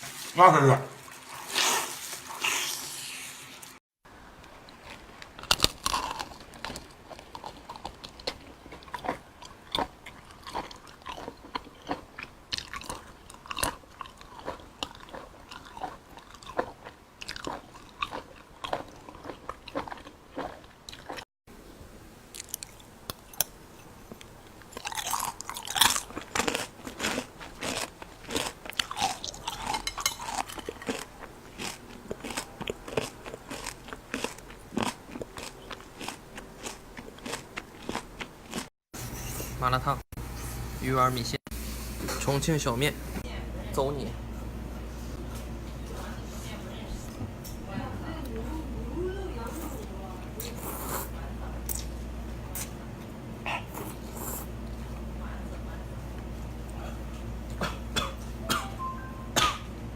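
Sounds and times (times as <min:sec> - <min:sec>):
person chewing and crunching: 0:01.0 - 0:03.1, 0:04.6 - 0:21.2, 0:22.3 - 0:23.5, 0:24.1 - 0:38.7, 0:53.4 - 0:55.0.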